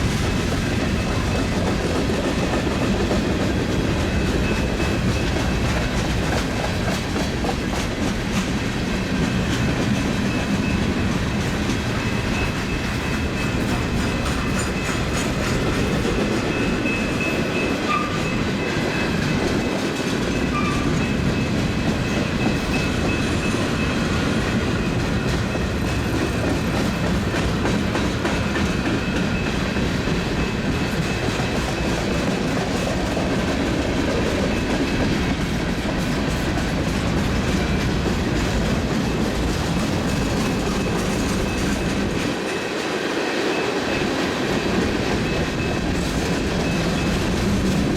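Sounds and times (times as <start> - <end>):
clickety-clack over rail joints: 0.0 - 47.9
train wheels rumbling on rail: 0.0 - 47.9.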